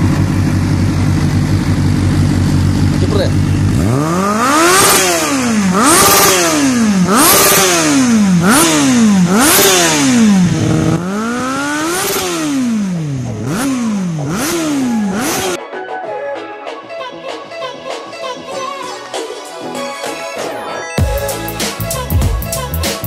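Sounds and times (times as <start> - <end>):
exhaust cracking: 0.0 - 15.6
motorcycle engine revving: 0.0 - 15.6.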